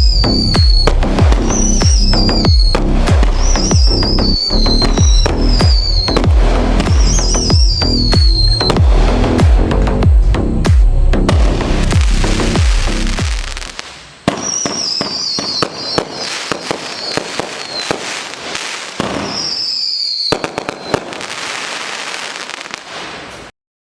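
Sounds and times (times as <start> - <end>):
high firework whistles: 0.0 - 8.8, 11.3 - 23.5
electronic music with pulsing bass: 0.0 - 13.8
fireworks popping and crackling: 0.0 - 23.5.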